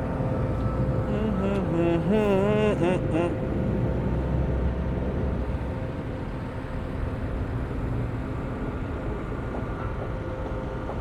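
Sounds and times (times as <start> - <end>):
faint steady hum: 0.0 - 3.8.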